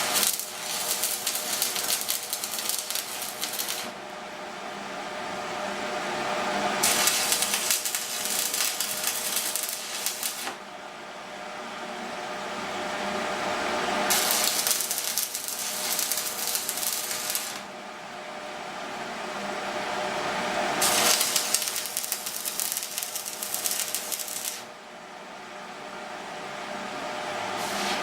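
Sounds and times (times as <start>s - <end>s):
arc welding crackling sizzle: 0.0s - 4.0s, 6.8s - 10.6s, 14.1s - 17.7s, 20.8s - 24.7s, 27.6s - 28.0s.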